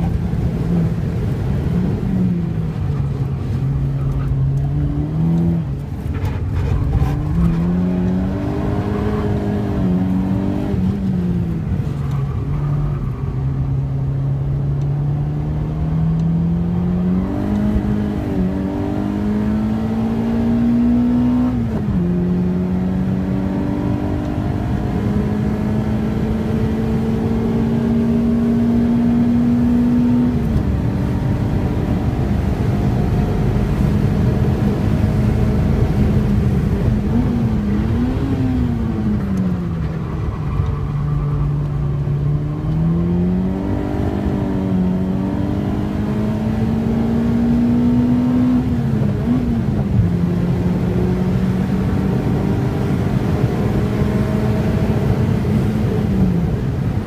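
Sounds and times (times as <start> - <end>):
car engine revving through gears: 0.0 - 57.0
road and tyre noise: 0.0 - 57.0.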